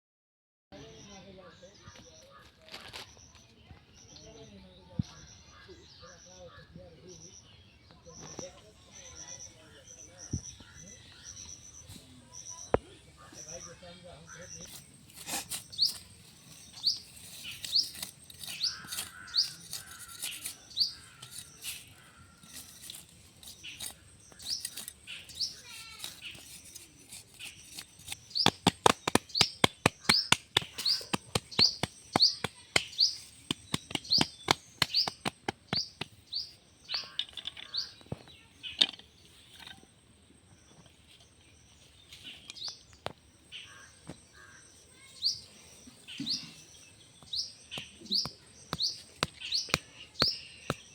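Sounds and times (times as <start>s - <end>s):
small bird chirping: 1.8s - 50.9s
fast sharp clicks: 28.1s - 36.2s.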